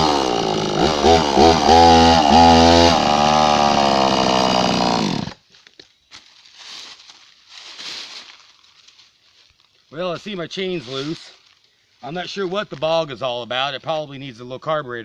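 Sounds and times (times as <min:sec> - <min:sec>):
chainsaw revving: 0:00.0 - 0:05.4.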